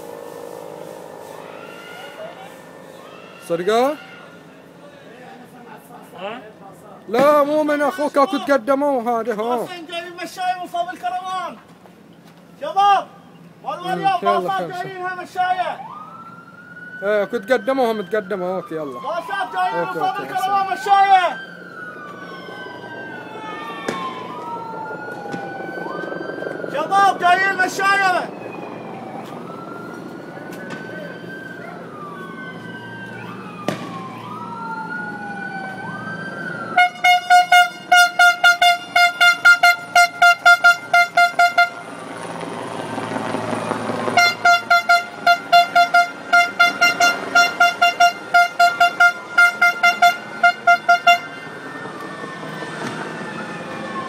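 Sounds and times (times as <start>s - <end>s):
rapid pulsing horn tone: 0.0s - 5.3s, 36.7s - 42.0s, 44.0s - 51.6s
police sirens wailing: 0.0s - 54.0s.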